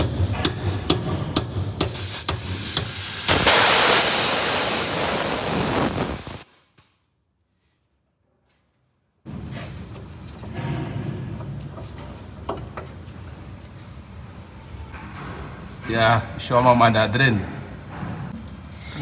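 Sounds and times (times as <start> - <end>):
air brake hissing: 1.9 - 6.5.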